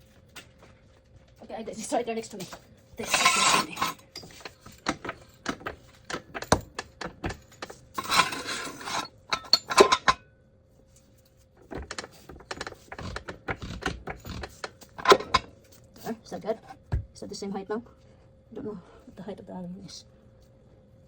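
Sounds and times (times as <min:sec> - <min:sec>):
short metallic rattle: 0:03.0 - 0:10.2.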